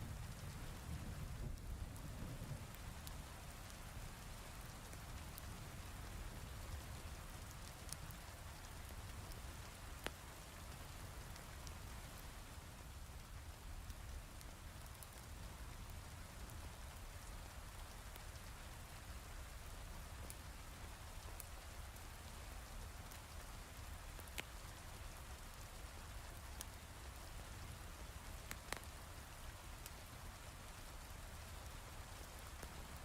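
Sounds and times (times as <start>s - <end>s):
fireplace crackling: 2.6s - 18.4s, 23.1s - 33.0s.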